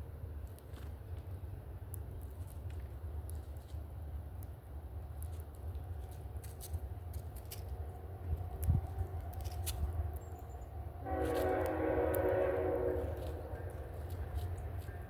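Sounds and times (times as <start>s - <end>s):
horn blast: 11.0s - 13.6s.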